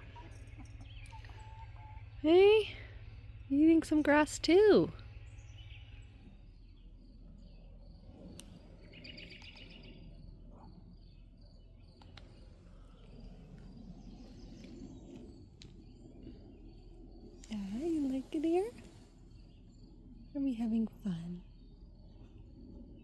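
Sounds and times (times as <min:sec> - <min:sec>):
faint bird chirping: 0:00.0 - 0:23.0
faint clicks: 0:08.3 - 0:08.6, 0:12.0 - 0:12.4.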